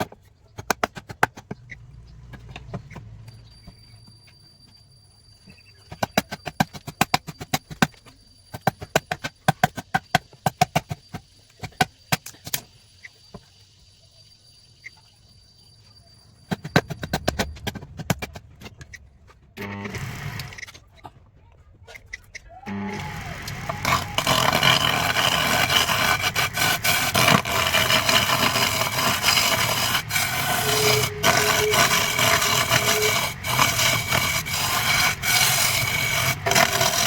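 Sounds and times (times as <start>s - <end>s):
faint high whine: 22.7s - 37.0s.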